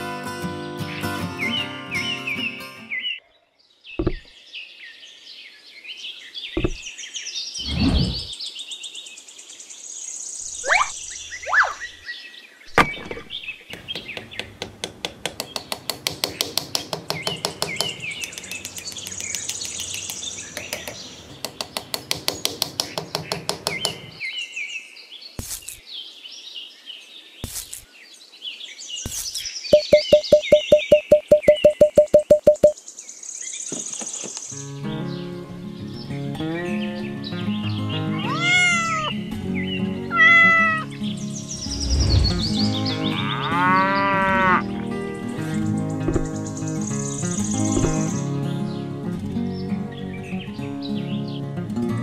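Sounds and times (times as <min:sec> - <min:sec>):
birds chirping: 0:00.8 - 0:51.6
sharp knocks and taps: 0:04.0 - 0:04.3, 0:06.6 - 0:06.8, 0:13.7 - 0:24.1, 0:29.8 - 0:32.8
fast even ticking: 0:29.8 - 0:32.8.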